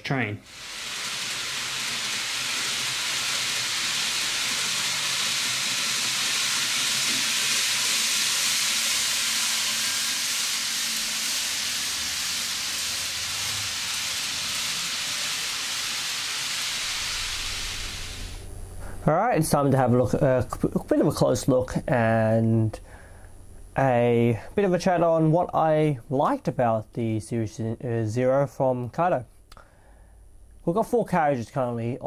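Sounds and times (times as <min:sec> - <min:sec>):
model train wheels hissing: 0:00.4 - 0:19.1.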